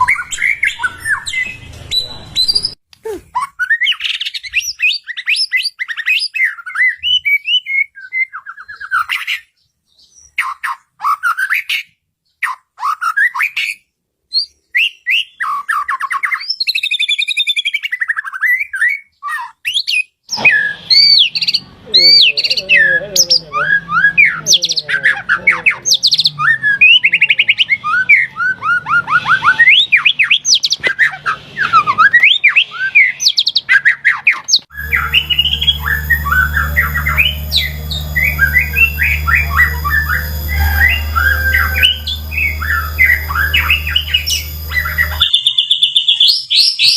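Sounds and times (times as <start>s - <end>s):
bird whistled song: 0.0s - 2.8s, 3.4s - 46.9s
low background hum: 34.7s - 45.4s.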